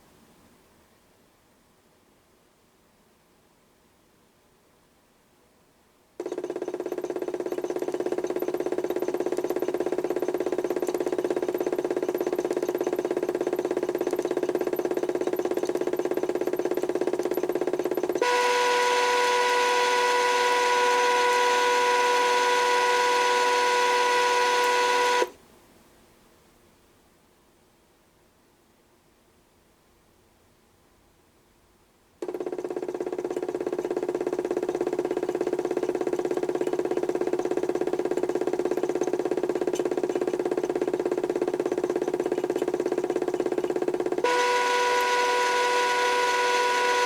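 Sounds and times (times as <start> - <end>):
electric motor running: 6.2 - 25.4, 32.2 - 47.0.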